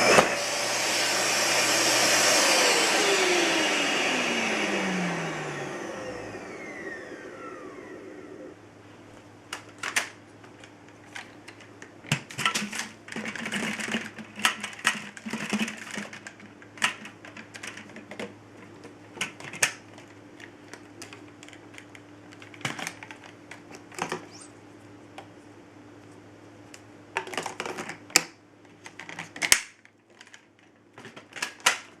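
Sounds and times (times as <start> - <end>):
vacuum motor whine spinning down: 0.0 - 8.6.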